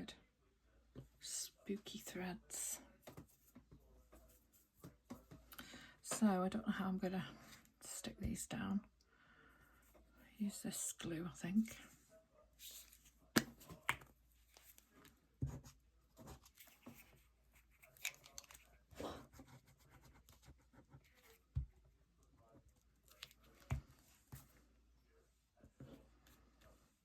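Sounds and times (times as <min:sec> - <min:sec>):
paper rustling and crinkling: 0:16.2 - 0:18.9.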